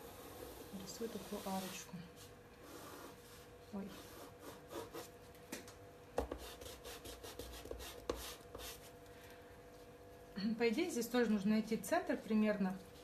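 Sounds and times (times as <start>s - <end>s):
pencil scratching on paper: 2.6s - 5.1s, 6.3s - 8.8s.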